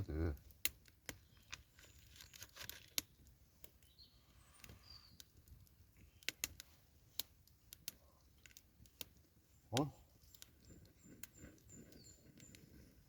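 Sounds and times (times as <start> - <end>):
high bird chirps: 3.8 - 5.2, 10.6 - 12.7
faint sharp clicks and taps: 4.6 - 12.9.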